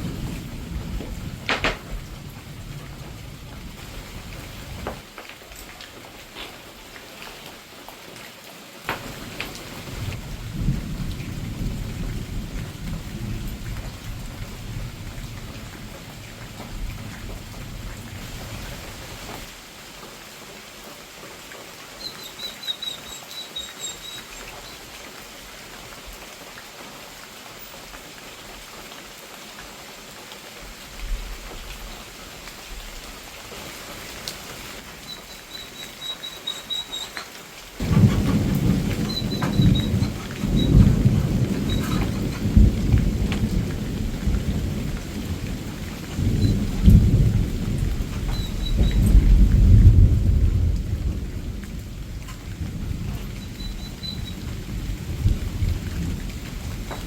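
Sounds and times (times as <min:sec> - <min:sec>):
low rumble of thunder: 0:00.0 - 0:05.0, 0:09.0 - 0:19.5, 0:37.8 - 0:57.0
steady rain falling: 0:00.0 - 0:57.0.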